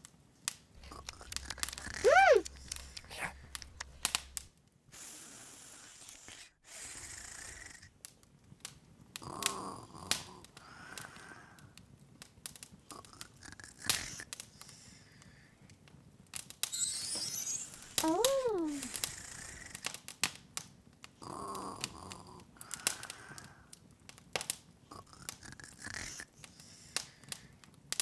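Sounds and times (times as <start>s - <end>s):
log fire crackling: 0.8s - 4.5s
short high squeak: 16.6s - 19.0s.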